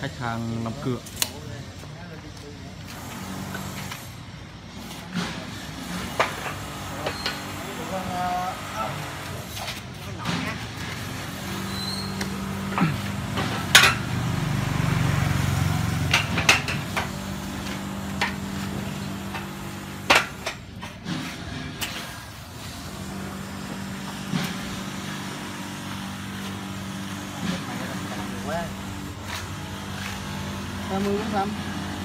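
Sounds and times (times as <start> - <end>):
sharp metal knocks and clanks: 13.2 - 14.4, 15.9 - 22.2.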